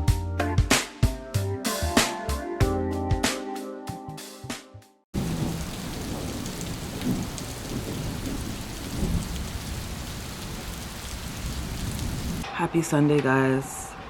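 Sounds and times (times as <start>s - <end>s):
light rain falling: 5.2s - 12.4s.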